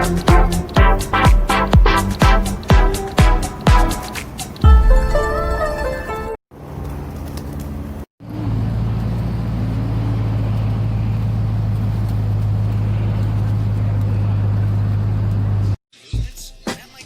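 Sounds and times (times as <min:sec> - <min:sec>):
motor vehicle running hum: 0:00.0 - 0:04.0, 0:06.6 - 0:15.8.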